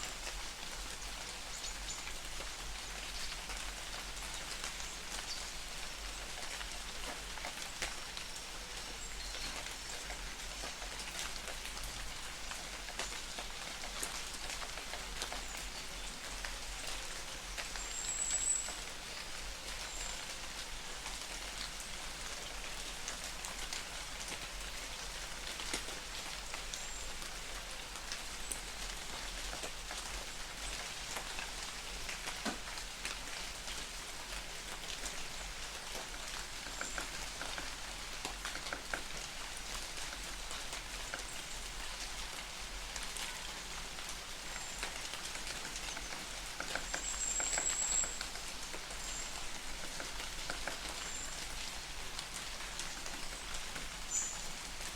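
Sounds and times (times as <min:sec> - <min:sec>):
light rain hissing: 0:00.0 - 0:54.9
raindrops ticking: 0:00.2 - 0:54.9.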